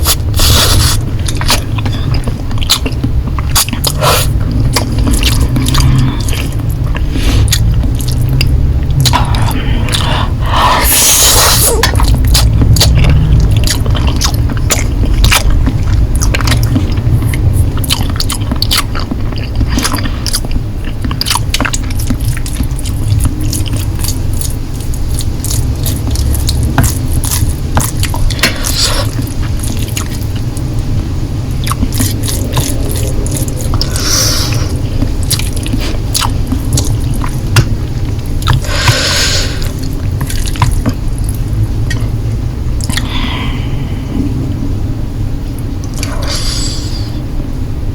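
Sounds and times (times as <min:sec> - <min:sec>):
noodle slurp: 0:00.0 - 0:02.9
wet chewing and smacking: 0:00.0 - 0:43.2, 0:45.6 - 0:47.0.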